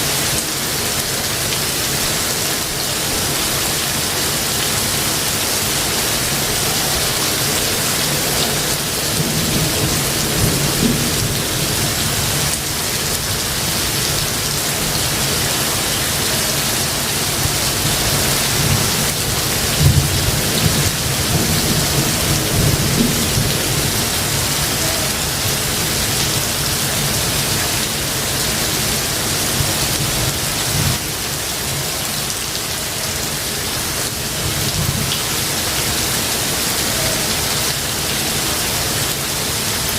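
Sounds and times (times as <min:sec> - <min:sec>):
heavy rain falling: 0:00.0 - 0:39.9
low thunder rumbling: 0:05.5 - 0:15.4, 0:17.4 - 0:26.2.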